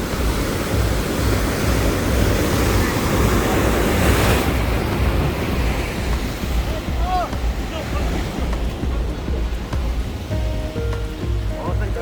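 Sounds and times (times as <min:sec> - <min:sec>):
sea surf washing against pier: 0:00.0 - 0:12.0
wind buffeting microphone: 0:00.0 - 0:12.0.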